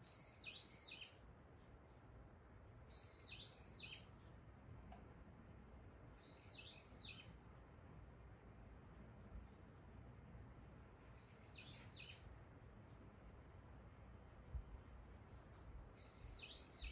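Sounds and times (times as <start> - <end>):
songbird calling: 0.0 - 1.2, 2.9 - 4.3, 6.2 - 7.4, 11.2 - 12.3, 15.3 - 16.9.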